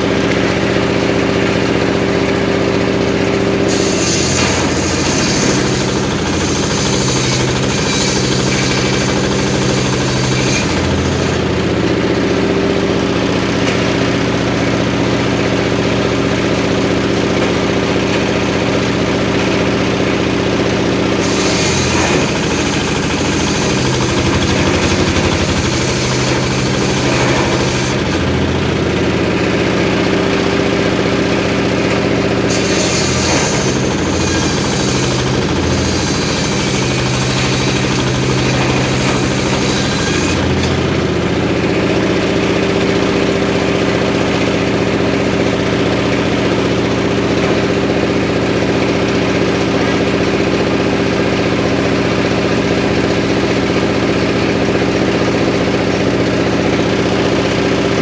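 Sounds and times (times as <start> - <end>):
circular saw engine knocking: 0.0 - 58.0
saw blade ripping wood: 3.6 - 12.4, 18.8 - 30.2, 31.0 - 44.6.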